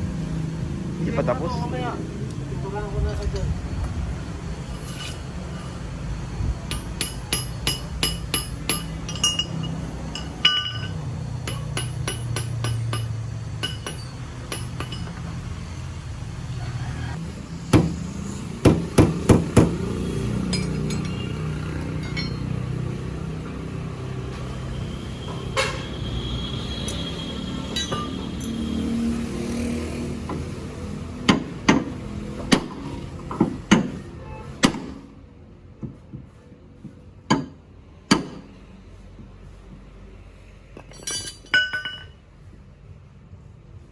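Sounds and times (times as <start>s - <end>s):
hammer striking metal: 6.7s - 15.4s, 17.7s - 18.0s, 18.6s - 22.7s, 26.8s - 28.7s, 37.3s - 38.5s, 40.8s - 42.2s.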